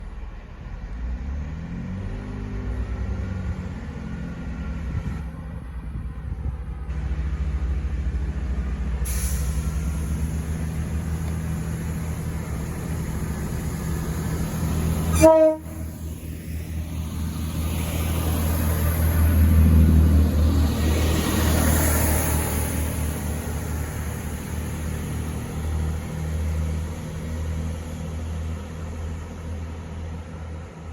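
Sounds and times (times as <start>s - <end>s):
diesel train drone: 0.0s - 30.9s
train horn tone: 15.1s - 16.0s.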